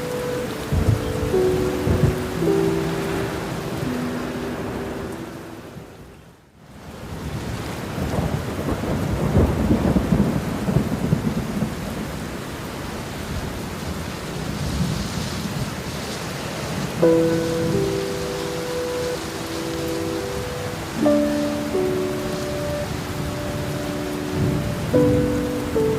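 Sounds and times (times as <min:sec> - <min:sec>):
thunder rumbling: 0:00.0 - 0:05.9, 0:07.9 - 0:12.4
sustained musical notes: 0:00.0 - 0:06.1, 0:17.0 - 0:25.9
steady rain: 0:00.0 - 0:25.9.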